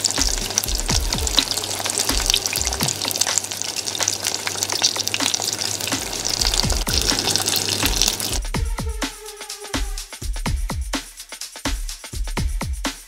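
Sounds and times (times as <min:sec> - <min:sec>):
background music with low beat: 0:00.0 - 0:03.6, 0:04.9 - 0:13.0
chicken deep-frying in oil: 0:00.0 - 0:08.4.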